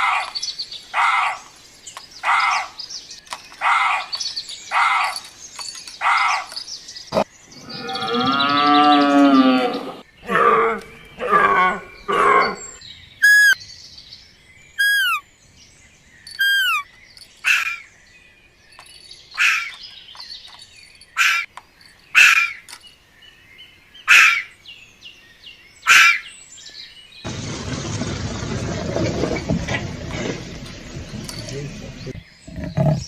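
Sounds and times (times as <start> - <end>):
high animal chirps: 13.2 - 13.6, 14.8 - 15.2, 16.3 - 16.9.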